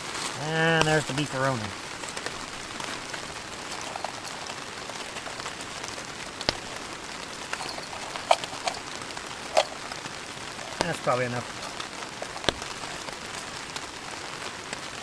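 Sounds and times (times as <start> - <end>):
heavy rain on a tarp: 0.0 - 15.0
sharp clicks and taps: 10.6 - 13.2.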